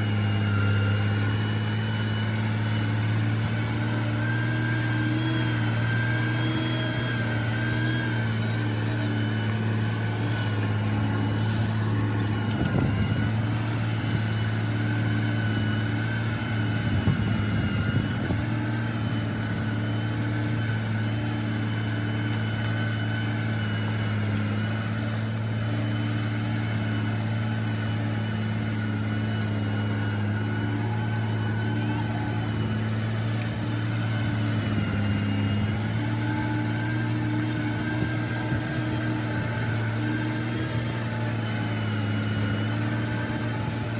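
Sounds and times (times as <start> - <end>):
heavy machine diesel engine running: 0.0 - 43.9.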